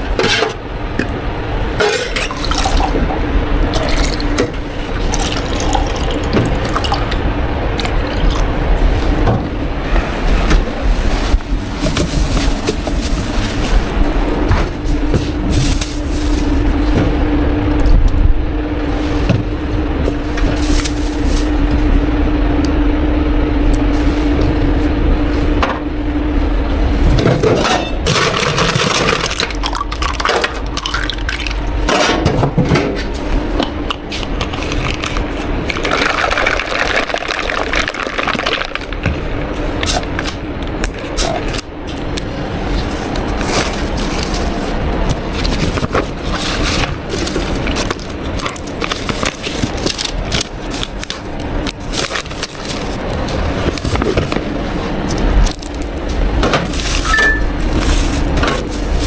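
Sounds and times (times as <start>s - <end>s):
machine hum: 0.0s - 59.0s
liquid pouring into cups: 5.0s - 7.2s, 34.8s - 38.7s.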